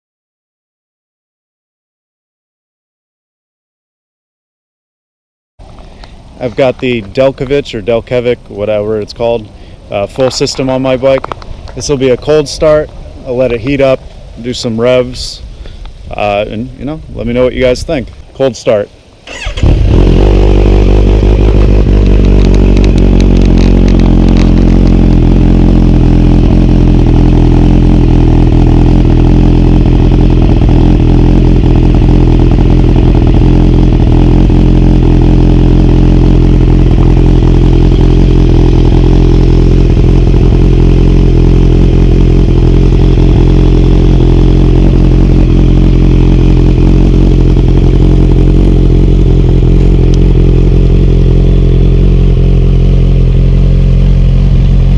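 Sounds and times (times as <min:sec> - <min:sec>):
motorcycle engine idling loudly: 0:19.3 - 0:54.9.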